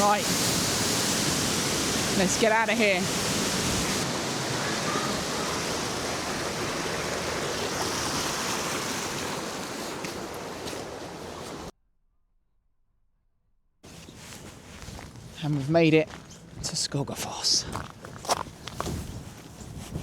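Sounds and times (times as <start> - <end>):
waterfall roaring: 0.0 - 11.7.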